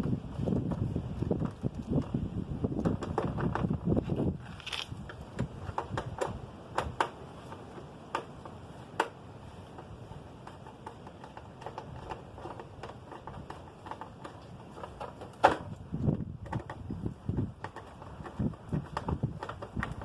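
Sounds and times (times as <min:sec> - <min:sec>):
clicks and knocks of parts: 0:04.4 - 0:20.0.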